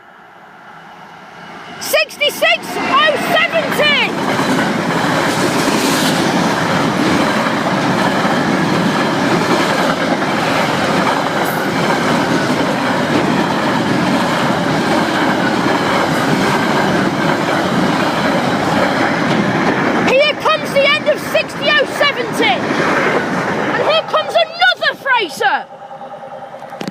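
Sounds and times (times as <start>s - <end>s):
freight train wheels on rails: 0.0s - 26.9s.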